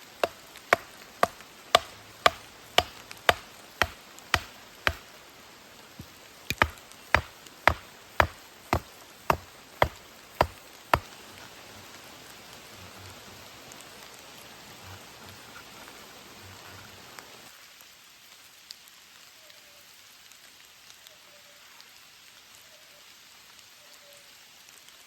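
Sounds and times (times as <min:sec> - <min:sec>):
steady rain: 0:00.0 - 0:25.0
chopping strikes on wood: 0:00.2 - 0:05.1, 0:06.0 - 0:11.1.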